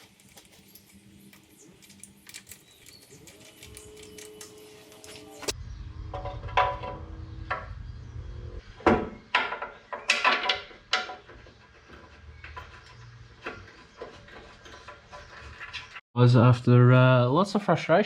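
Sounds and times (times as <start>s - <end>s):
metal clanks and knocks: 6.0s - 7.9s, 8.8s - 16.0s.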